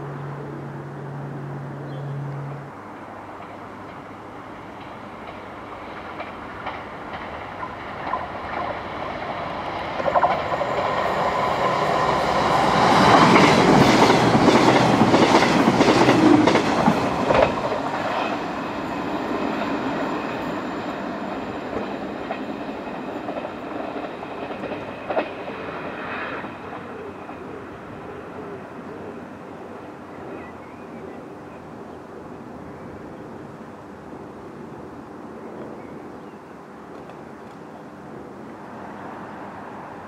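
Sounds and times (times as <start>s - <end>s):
diesel train passing: 0.0s - 40.0s
wheels clicking over rail joints: 3.3s - 27.4s.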